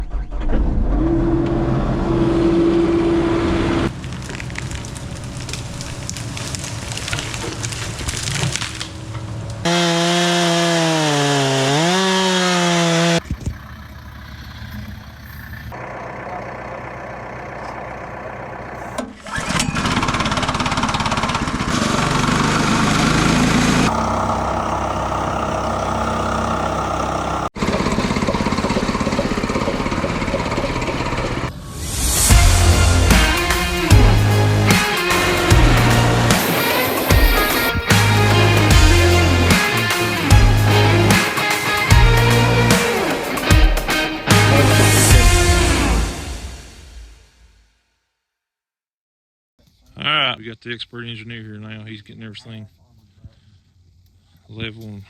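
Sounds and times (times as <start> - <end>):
sawmill engine running: 1.3 - 31.6, 32.2 - 46.6
saw blade cutting wood: 9.7 - 13.2, 32.5 - 45.5.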